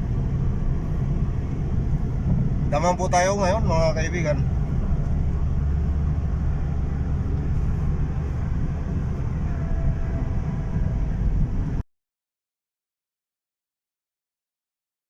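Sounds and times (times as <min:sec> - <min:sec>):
car road and engine rumble: 0:00.0 - 0:11.8.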